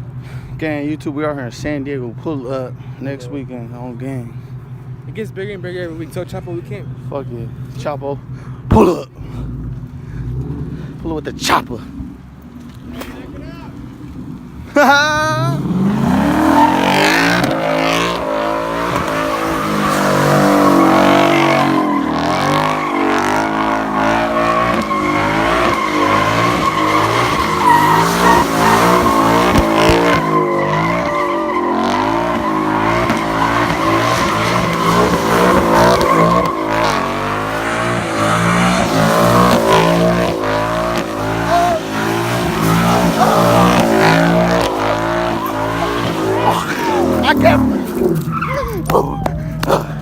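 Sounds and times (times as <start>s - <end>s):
tyres squealing: 14.7s - 50.0s
engine revving high: 15.2s - 48.9s.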